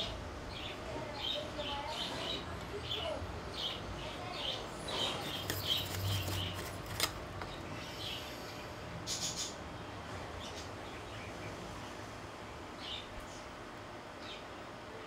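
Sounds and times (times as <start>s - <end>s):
small bird chirping: 0.5s - 6.7s.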